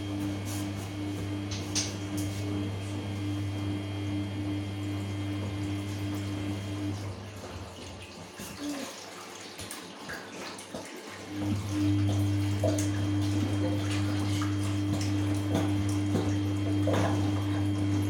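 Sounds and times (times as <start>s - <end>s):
washing machine humming: 0.0s - 18.0s
water sloshing: 4.8s - 18.0s.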